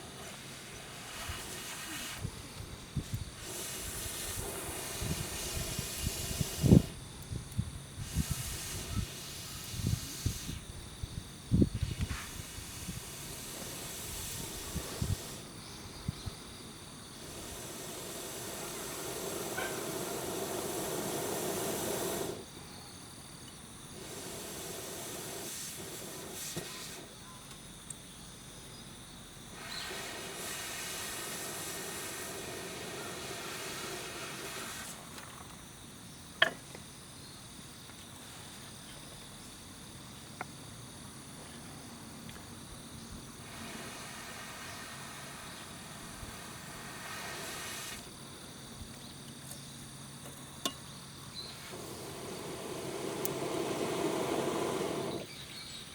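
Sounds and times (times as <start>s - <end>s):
wood fire rushing hiss: 0.0s - 22.6s, 23.8s - 27.2s, 29.3s - 36.3s, 42.4s - 49.0s, 51.2s - 55.6s
fire crackle: 51.6s - 55.3s.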